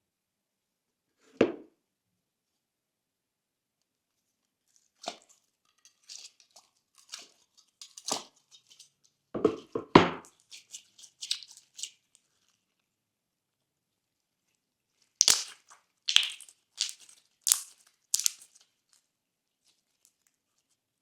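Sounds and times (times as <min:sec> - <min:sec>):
slime crackling and squishing: 0:10.3 - 0:12.5, 0:15.2 - 0:18.6.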